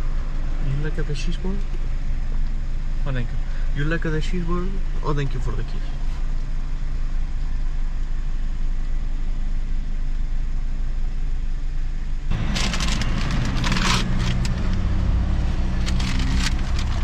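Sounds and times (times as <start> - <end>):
car engine idling: 0.0 - 17.0
crackling rustling noises: 12.3 - 17.0.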